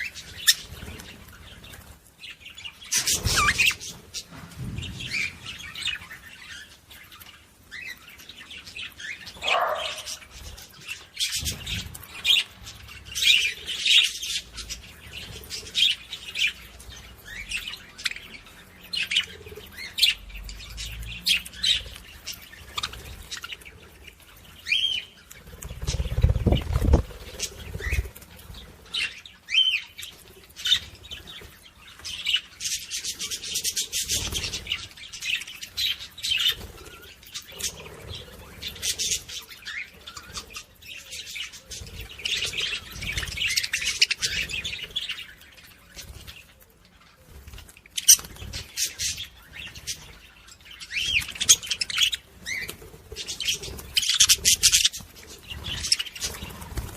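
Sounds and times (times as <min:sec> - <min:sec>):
low rumbling thud: 0:04.3 - 0:06.0
budgerigars chattering: 0:09.0 - 0:12.5, 0:50.8 - 0:56.7.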